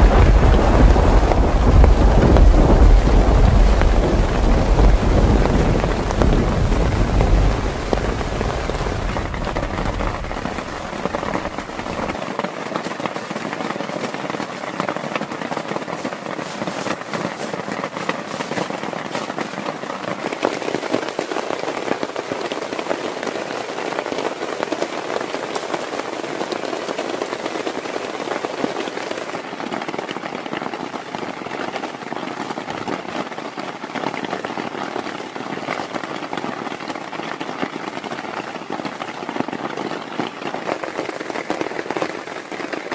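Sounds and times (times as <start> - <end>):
low rumble: 0.0 - 12.2
heavy rain falling: 0.0 - 42.9.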